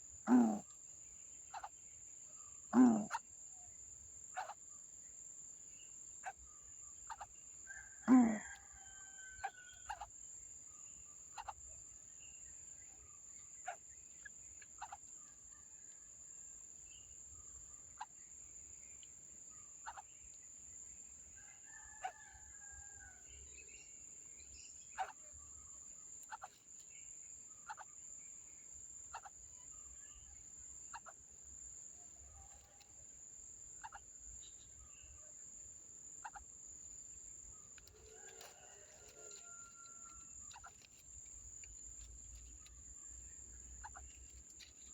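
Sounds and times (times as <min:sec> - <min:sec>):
bird calls: 0:00.0 - 0:00.7, 0:01.5 - 0:01.8, 0:04.3 - 0:04.6, 0:06.2 - 0:10.1, 0:11.3 - 0:11.6, 0:12.9 - 0:16.0, 0:19.8 - 0:20.2, 0:24.8 - 0:25.4, 0:26.2 - 0:26.7, 0:27.5 - 0:28.0, 0:29.1 - 0:31.2, 0:33.8 - 0:35.2, 0:36.2 - 0:36.5, 0:37.6 - 0:41.0, 0:41.6 - 0:44.9
short insect chirps: 0:00.0 - 0:44.9.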